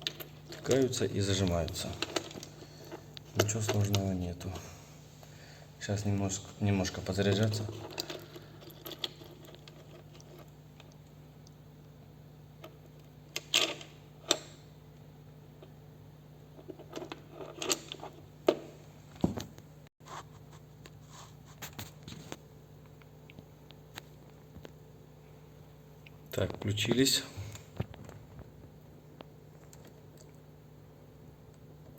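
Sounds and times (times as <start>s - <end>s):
steady low hum: 0.0s - 31.9s
small clicks and rustles: 7.3s - 11.6s, 27.5s - 30.4s.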